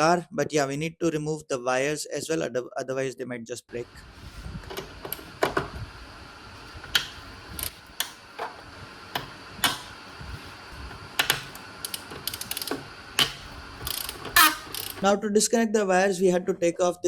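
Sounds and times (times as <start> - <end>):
hand tools clicking on car door: 6.8 - 10.0, 11.2 - 15.0.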